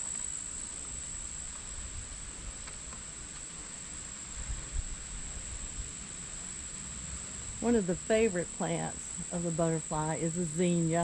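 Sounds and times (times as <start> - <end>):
insects trilling: 5.0 - 11.0.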